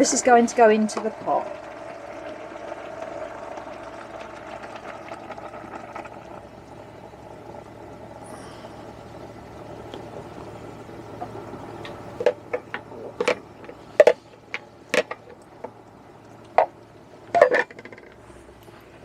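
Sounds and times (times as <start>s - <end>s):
gravy pouring into a pot: 1.1s - 6.6s.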